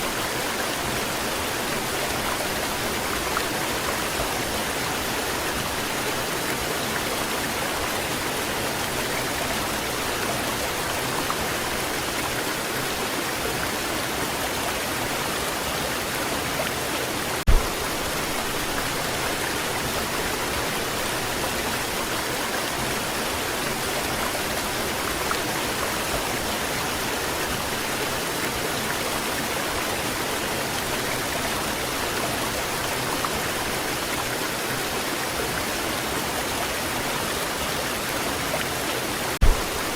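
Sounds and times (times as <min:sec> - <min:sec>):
waterfall pouring and splashing: 0:00.0 - 0:39.9
low thump: 0:17.5 - 0:18.0, 0:39.4 - 0:39.9.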